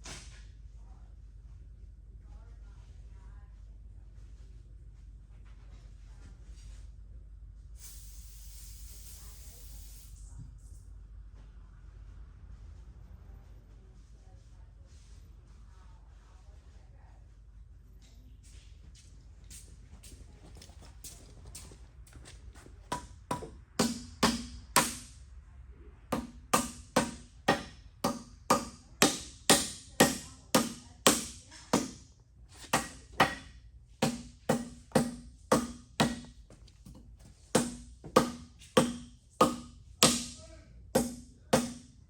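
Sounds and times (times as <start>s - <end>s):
hammer striking metal: 22.9s - 25.2s, 26.2s - 37.0s, 37.6s - 42.0s.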